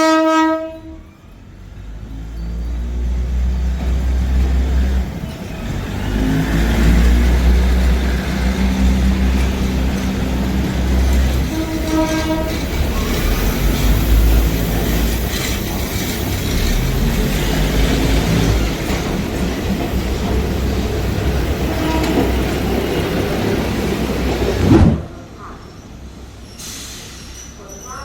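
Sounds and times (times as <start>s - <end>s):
train horn: 0.0s - 1.0s, 11.2s - 13.2s, 21.6s - 22.9s
train rumbling: 0.0s - 28.0s.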